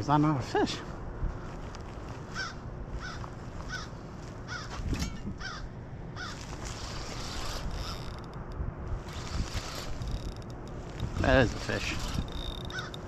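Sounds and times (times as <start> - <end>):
wind rumble: 0.0 - 13.0
bird calls rising and falling: 9.1 - 13.0.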